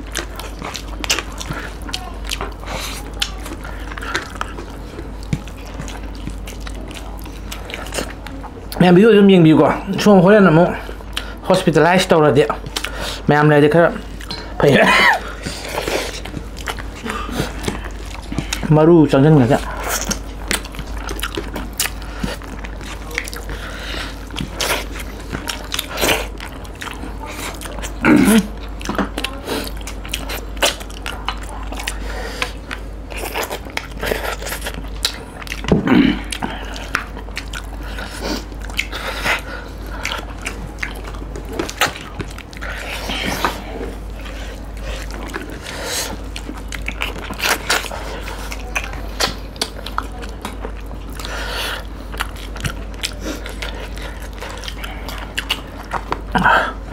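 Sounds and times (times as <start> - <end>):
chewing and biting: 0.0 - 56.9
vocal noises from eater: 12.6 - 56.9.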